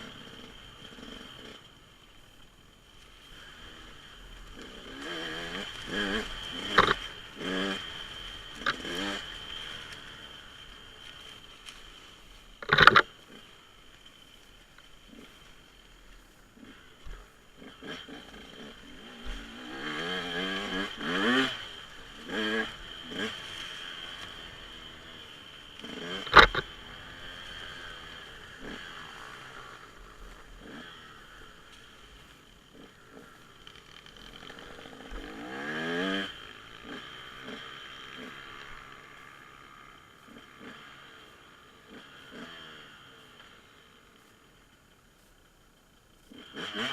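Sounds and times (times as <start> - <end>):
dirt bike engine revving: 0.0 - 44.4, 46.2 - 46.9.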